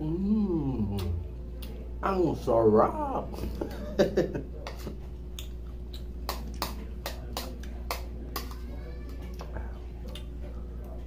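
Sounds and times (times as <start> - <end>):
steady low hum: 0.0 - 11.0
person chewing with mouth smacks: 0.8 - 1.8, 4.7 - 8.6, 9.3 - 10.5.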